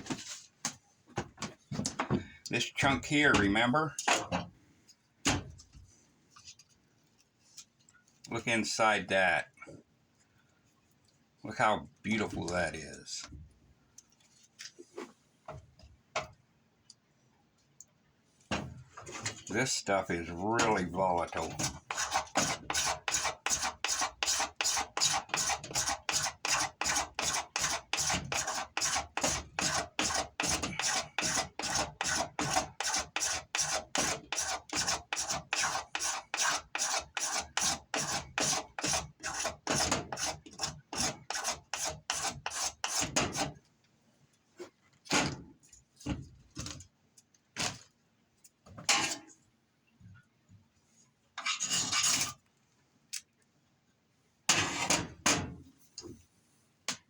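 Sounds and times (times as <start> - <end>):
blade scraping wood: 20.6 - 43.5.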